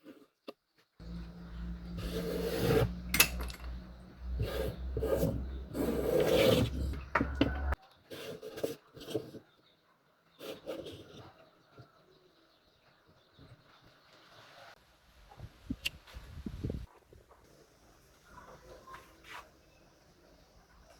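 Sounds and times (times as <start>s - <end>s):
steady low hum: 1.0s - 7.8s
tool scraping wood: 1.0s - 9.4s, 10.4s - 11.3s.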